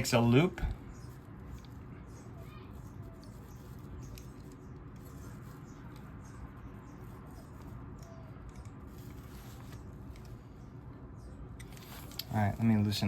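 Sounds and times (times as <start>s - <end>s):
small parts clicking and scraping: 2.7s - 6.4s, 11.5s - 12.6s.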